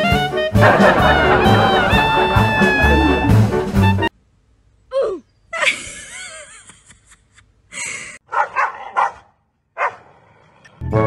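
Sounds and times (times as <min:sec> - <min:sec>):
dogs barking: 0:08.3 - 0:10.2.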